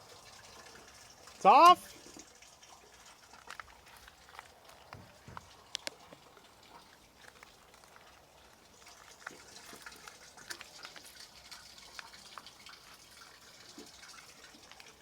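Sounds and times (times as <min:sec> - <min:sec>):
water trickling and dripping in pipes: 0:00.0 - 0:15.0
small ticks: 0:03.4 - 0:12.8.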